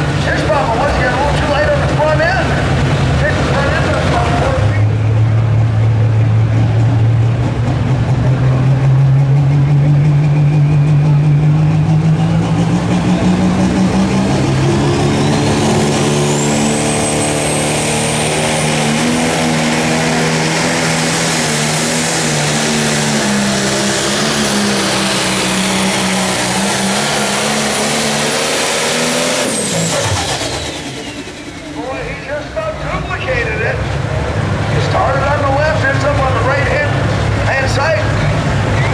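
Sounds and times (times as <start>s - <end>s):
diesel engine at full power: 0.0s - 38.9s
turbo whine: 9.6s - 32.6s.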